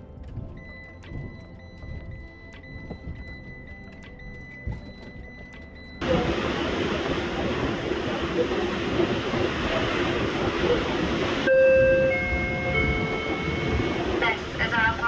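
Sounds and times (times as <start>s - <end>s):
faint music: 0.0s - 6.8s.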